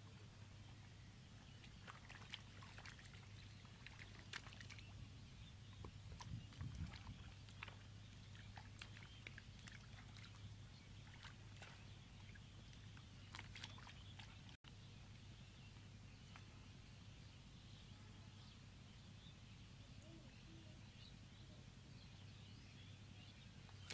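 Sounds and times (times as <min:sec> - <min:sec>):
low steady hum: 0:00.0 - 0:23.9
hands squelching in wet mud: 0:01.5 - 0:05.0, 0:06.1 - 0:11.9, 0:12.8 - 0:14.6.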